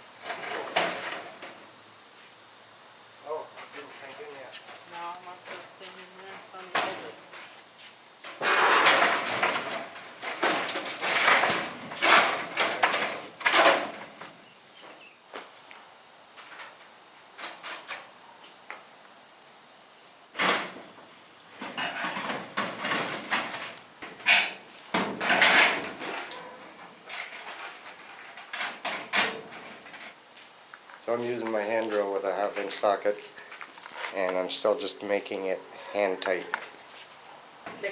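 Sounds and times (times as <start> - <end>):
crickets chirring: 0.0 - 37.9
steel panels clanking and rattling: 0.2 - 1.6, 8.2 - 14.3, 20.4 - 20.9, 21.6 - 30.1.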